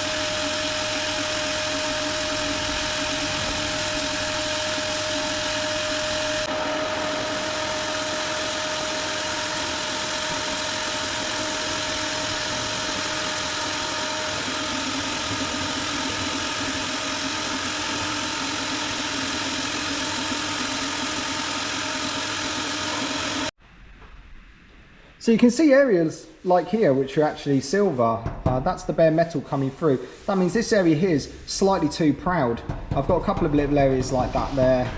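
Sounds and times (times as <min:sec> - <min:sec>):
power sander running: 0:00.0 - 0:23.6.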